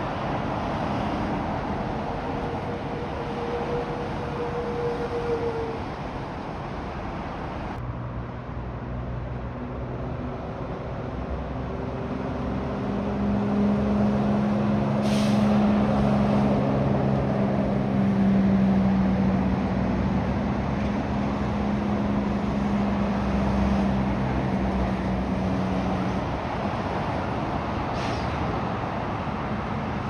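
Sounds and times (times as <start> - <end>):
heavy truck engine running: 0.0 - 7.8, 10.7 - 30.0
air brake hiss: 15.0 - 15.7, 27.9 - 28.4.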